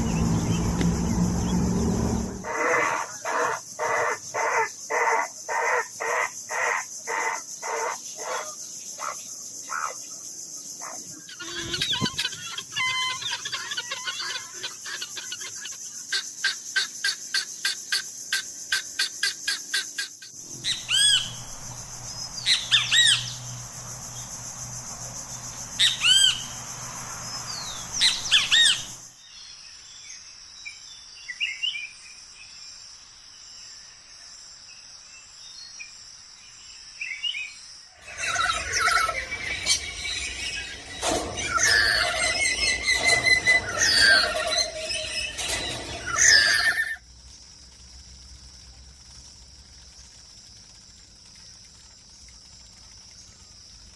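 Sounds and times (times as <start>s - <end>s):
bird calls: 10.8s - 29.1s, 38.0s - 47.0s
rapid bird trill: 10.8s - 29.1s, 38.0s - 47.0s
bird chirps: 11.1s - 29.0s
steady high hiss: 19.9s - 29.2s.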